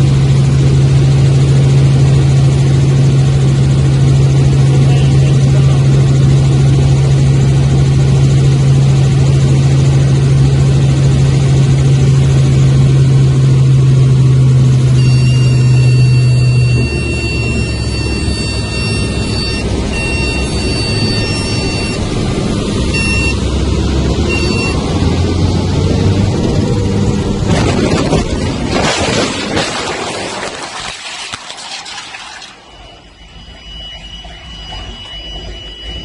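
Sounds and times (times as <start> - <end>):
helicopter engine and rotor drone: 0.0 - 36.0
high-pitched electronic tone: 14.9 - 22.2, 22.9 - 23.5, 24.3 - 24.8, 28.8 - 36.0.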